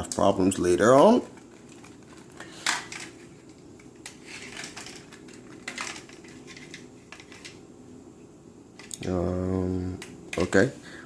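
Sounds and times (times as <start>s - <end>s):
toy cars clicking and clattering: 1.0s - 7.6s.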